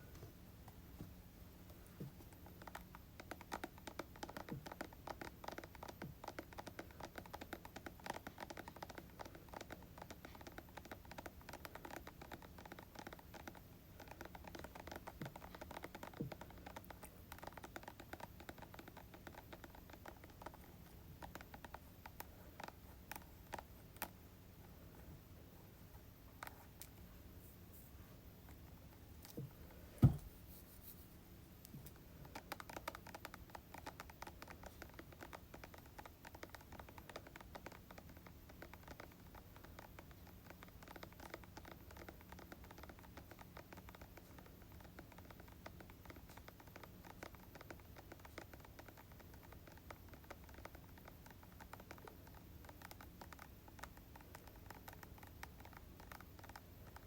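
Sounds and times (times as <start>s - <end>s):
tapping on plastic containers: 30.0s - 30.3s.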